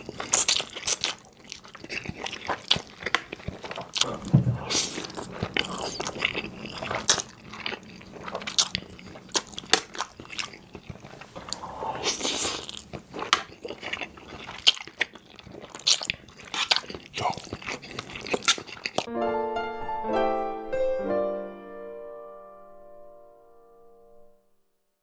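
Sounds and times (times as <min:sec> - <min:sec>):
wet chewing and biting: 0:00.0 - 0:19.1.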